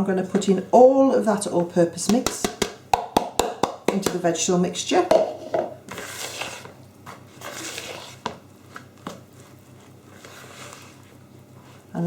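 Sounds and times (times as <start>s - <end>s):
jug knocking against bowl: 2.0s - 4.3s, 5.0s - 5.8s.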